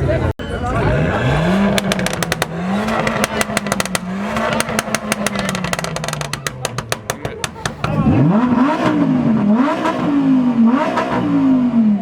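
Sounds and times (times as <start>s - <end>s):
car engine accelerating hard: 0.0s - 12.0s.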